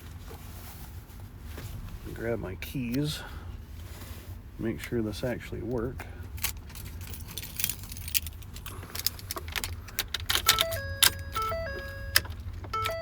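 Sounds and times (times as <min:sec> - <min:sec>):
keys jangling in ignition: 0:06.3 - 0:13.0
electronic dashboard chime: 0:10.4 - 0:13.0.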